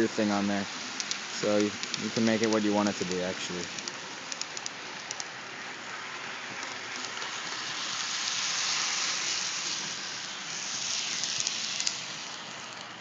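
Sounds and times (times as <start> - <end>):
model train running on track: 0.0 - 13.0
sharp clicks: 1.0 - 5.3, 11.2 - 12.1.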